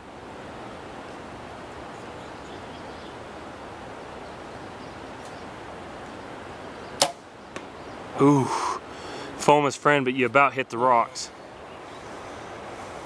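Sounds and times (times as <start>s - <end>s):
wind: 0.0s - 13.0s
bow snapping as arrow shot: 7.0s - 7.7s.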